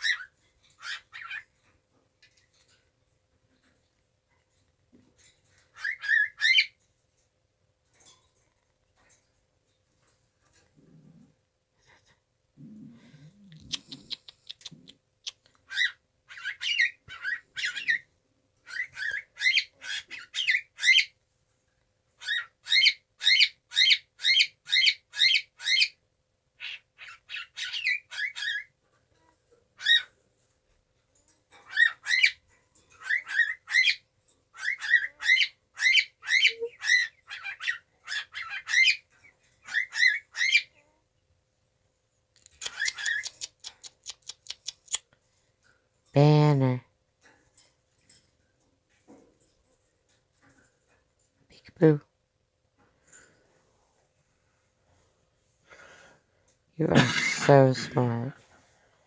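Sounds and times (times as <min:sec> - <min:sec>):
cockatiel chirping calls: 0:00.0 - 0:01.5, 0:05.7 - 0:06.8, 0:15.7 - 0:18.0, 0:26.6 - 0:28.7, 0:33.0 - 0:39.0, 0:39.6 - 0:40.7, 0:42.6 - 0:43.5.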